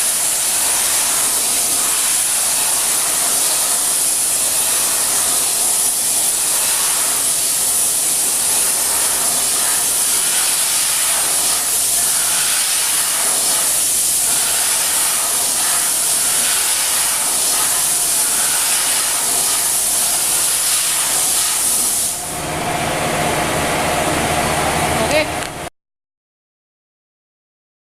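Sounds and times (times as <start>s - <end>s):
air jet hissing: 0.0s - 22.3s
low machine hum: 22.2s - 25.7s.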